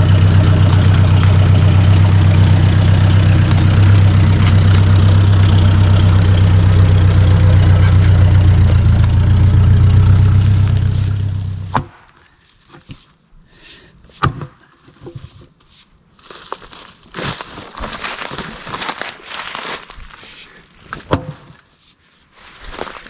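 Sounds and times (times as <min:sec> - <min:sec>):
tractor engine idling: 0:00.0 - 0:11.8.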